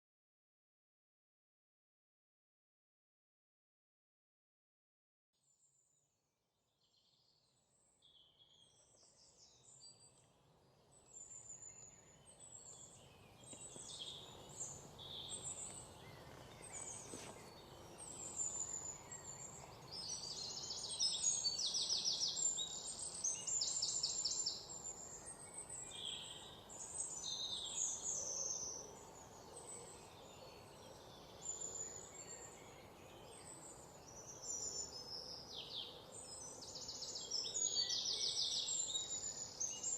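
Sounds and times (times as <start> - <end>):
birds singing and chirping: 10.9 - 39.9.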